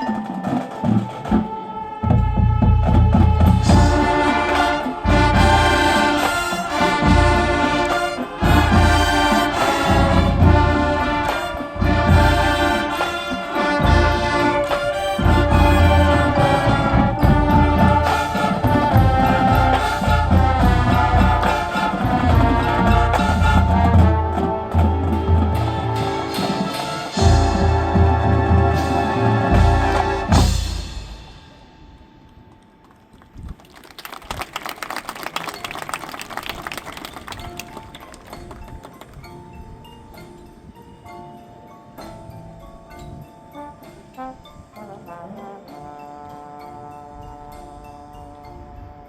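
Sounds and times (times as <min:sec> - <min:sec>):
brass chords and melody: 0:00.0 - 0:32.2, 0:43.5 - 0:49.0
marching band playing: 0:00.0 - 0:32.6, 0:33.9 - 0:39.3, 0:43.5 - 0:49.0.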